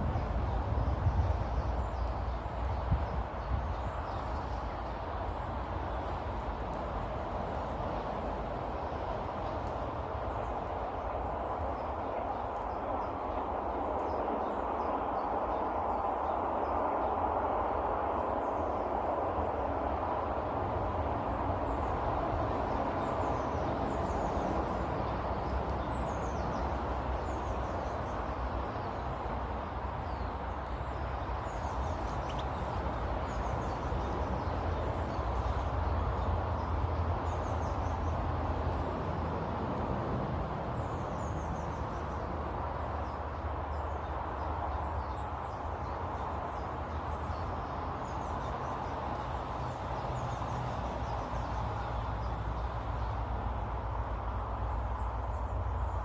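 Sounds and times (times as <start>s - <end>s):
low rumbling background noise: 0.0s - 56.0s
small birds chirping: 21.6s - 53.7s.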